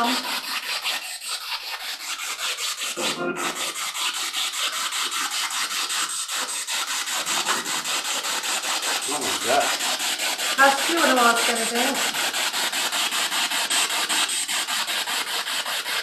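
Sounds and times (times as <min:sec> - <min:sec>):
stuttering radio static: 0:03.0 - 0:03.6
snatch of radio sound: 0:03.0 - 0:03.7.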